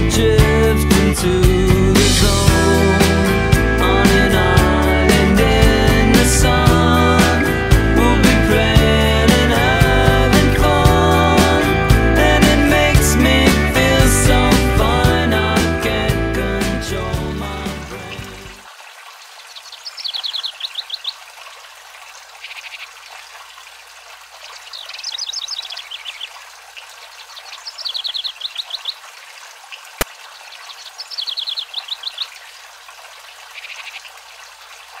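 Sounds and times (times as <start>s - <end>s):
running water hiss: 16.6s - 35.0s
songbird trilling: 19.6s - 21.2s, 22.4s - 22.9s, 24.5s - 29.0s, 30.4s - 32.5s, 33.5s - 34.1s.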